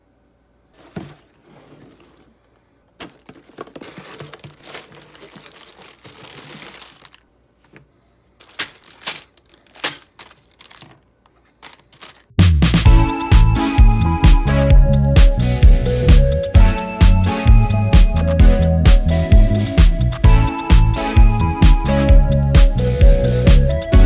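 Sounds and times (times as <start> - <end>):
plastic packaging crinkling and tearing: 3.0 - 7.3, 8.4 - 12.4.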